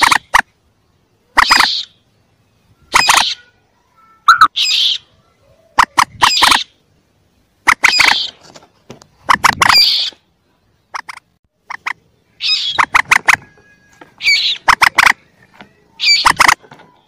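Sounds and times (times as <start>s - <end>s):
moorhen chicks clucking: 0.0s - 0.6s, 1.3s - 2.0s, 4.3s - 6.8s, 7.6s - 17.0s.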